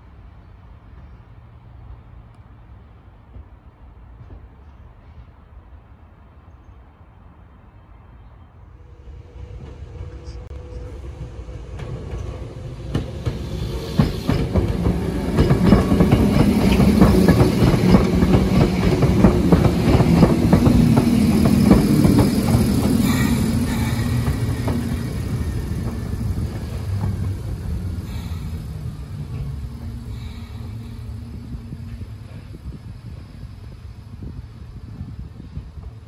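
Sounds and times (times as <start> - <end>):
electric train rumble: 8.5 - 36.0
wheels clacking over rail joints: 11.2 - 32.8.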